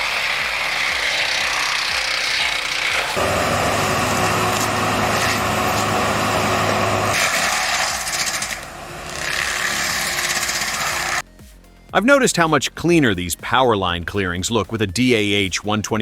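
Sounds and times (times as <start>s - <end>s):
machinery grinding wood: 0.0s - 11.2s
low engine hum: 3.1s - 11.2s.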